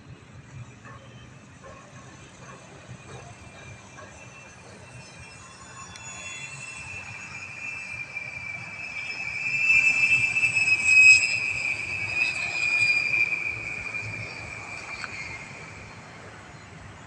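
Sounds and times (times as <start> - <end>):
model plane motors whining: 0.8 - 17.0.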